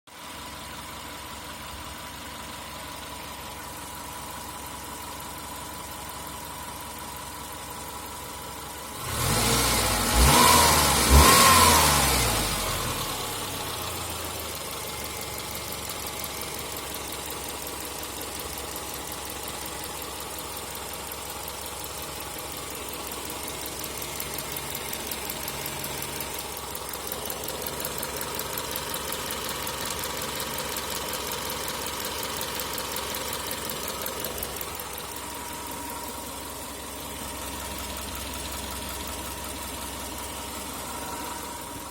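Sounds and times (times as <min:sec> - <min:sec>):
engine revving: 0:09.0 - 0:14.4, 0:22.3 - 0:41.9
car engine idling with knock: 0:12.3 - 0:41.9.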